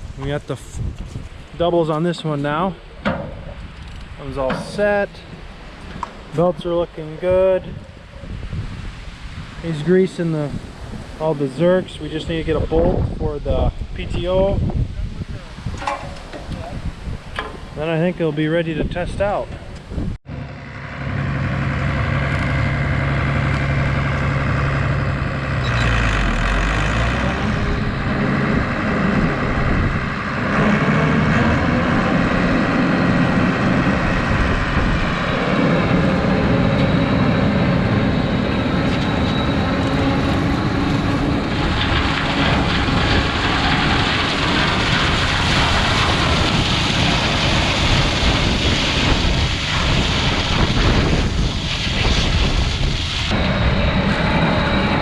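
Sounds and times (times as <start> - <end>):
rushing noise: 0.0 - 55.0
tractor engine running: 20.3 - 51.5.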